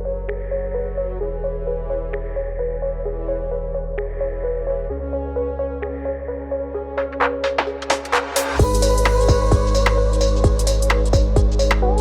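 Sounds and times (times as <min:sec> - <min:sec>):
ambient electronic music: 0:00.0 - 0:12.0.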